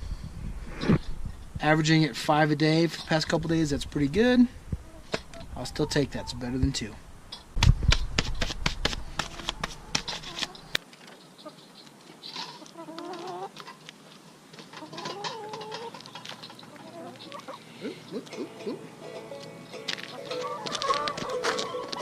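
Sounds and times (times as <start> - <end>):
hens calling: 2.3 - 7.0, 9.0 - 13.9, 14.5 - 22.0.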